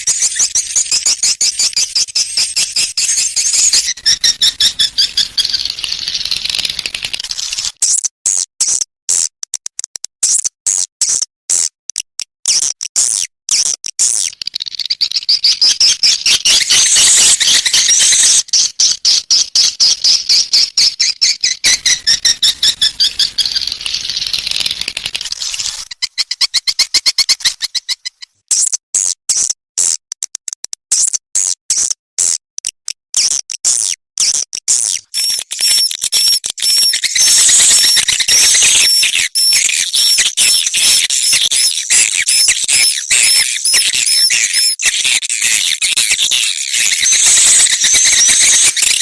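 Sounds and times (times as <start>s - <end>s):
swiftlet chirping trills: 0.0s - 7.8s, 14.2s - 28.3s, 35.1s - 49.0s.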